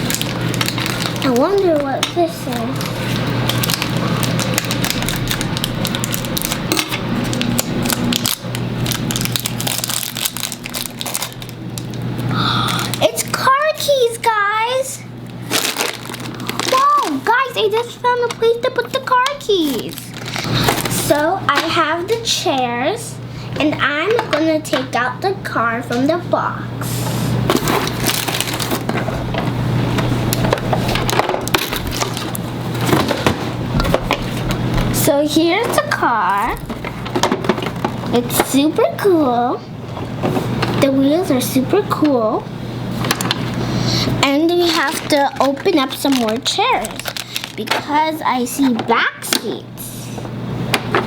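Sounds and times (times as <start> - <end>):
plastic packaging crinkling: 0.0 - 14.3, 15.2 - 22.2, 27.4 - 38.7, 42.9 - 48.9
steady low hum: 0.0 - 51.0.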